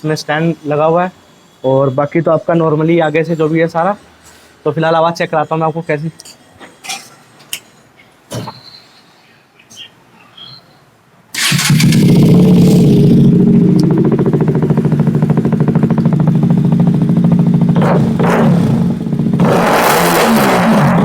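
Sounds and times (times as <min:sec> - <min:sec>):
motorcycle engine starting and idling: 0:11.3 - 0:19.6.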